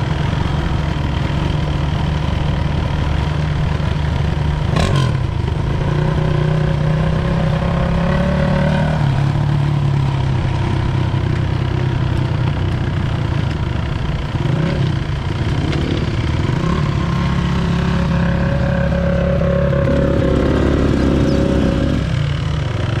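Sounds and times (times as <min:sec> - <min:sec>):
dirt bike engine revving: 0:00.0 - 0:09.7, 0:14.3 - 0:22.7.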